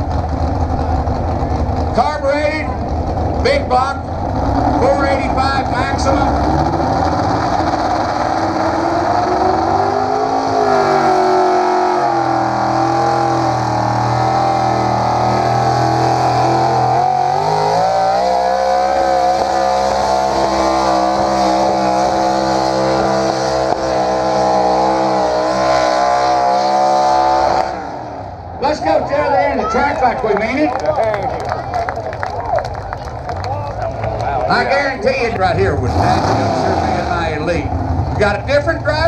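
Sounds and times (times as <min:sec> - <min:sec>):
engine running hard at high revs: 0:02.8 - 0:28.4, 0:34.5 - 0:39.0.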